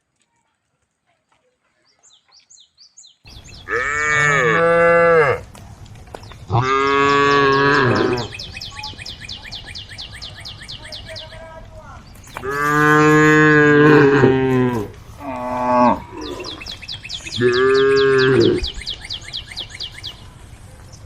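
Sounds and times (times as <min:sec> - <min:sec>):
cow mooing: 0:03.7 - 0:05.4, 0:06.5 - 0:08.3, 0:12.4 - 0:16.7, 0:17.4 - 0:18.7.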